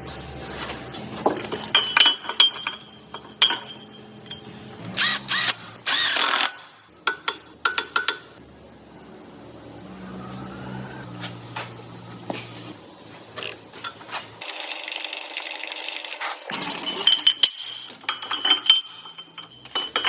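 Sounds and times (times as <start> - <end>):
tools clicking and clinking on metal: 1.2 - 8.4, 13.4 - 20.0
power tool bursts: 4.9 - 6.8
ratchet clicks: 5.0 - 8.3.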